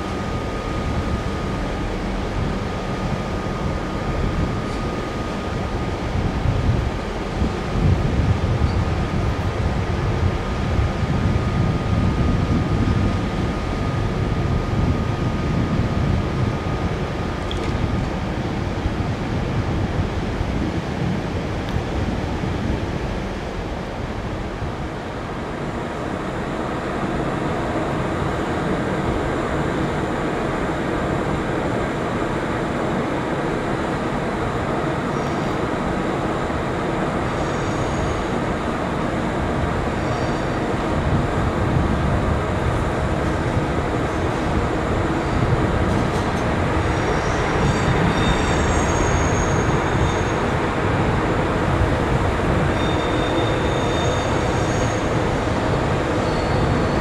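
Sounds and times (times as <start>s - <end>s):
train rumble: 0.0s - 57.0s
wheel squeals: 47.0s - 50.4s, 52.7s - 55.2s, 56.1s - 57.0s.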